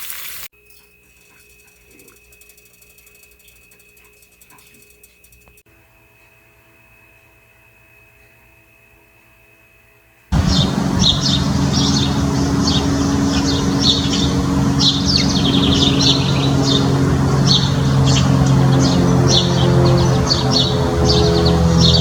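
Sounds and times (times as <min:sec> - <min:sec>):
low mechanical hum: 0:00.3 - 0:22.0
songbirds chirping: 0:10.4 - 0:22.0.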